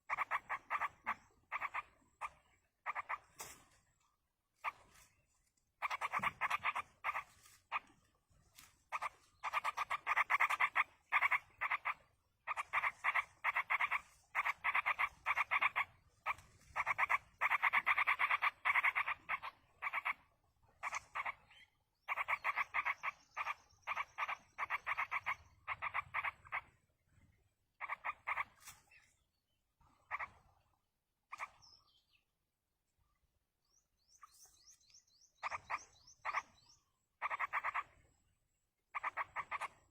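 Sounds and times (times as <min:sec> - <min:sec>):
nestlings rasping begging calls: 0:00.0 - 0:03.5, 0:05.8 - 0:08.0, 0:08.9 - 0:26.7, 0:27.8 - 0:29.0, 0:30.1 - 0:30.4, 0:34.1 - 0:38.0, 0:38.9 - 0:39.9.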